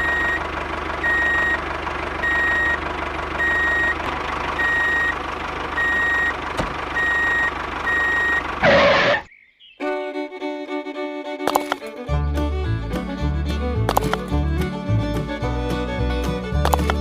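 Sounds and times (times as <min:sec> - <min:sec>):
reversing alarm beeps: 0:00.0 - 0:00.4, 0:01.0 - 0:01.6, 0:02.2 - 0:02.8, 0:03.4 - 0:04.0, 0:04.6 - 0:05.2, 0:05.8 - 0:06.4, 0:07.0 - 0:09.3
motor hum: 0:00.0 - 0:17.0.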